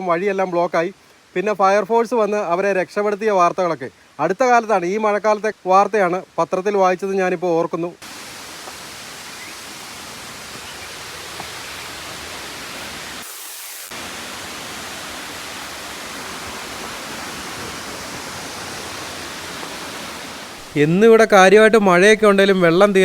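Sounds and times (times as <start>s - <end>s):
waterfall rushing: 8.0s - 23.0s.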